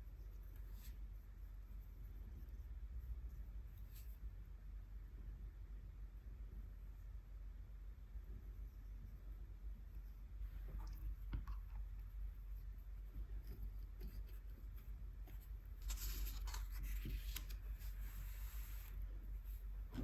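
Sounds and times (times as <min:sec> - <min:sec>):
light clicks and taps: 0:10.5 - 0:12.2.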